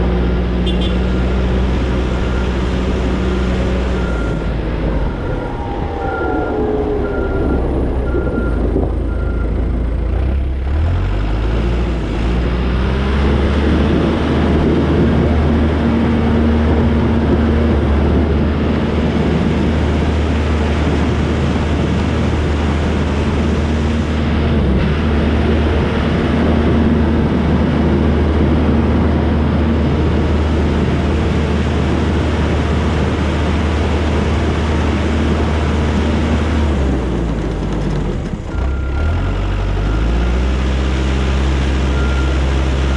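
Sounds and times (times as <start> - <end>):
diesel engine revving: 0.0 - 42.9
reversing alarm beeping: 2.0 - 9.7.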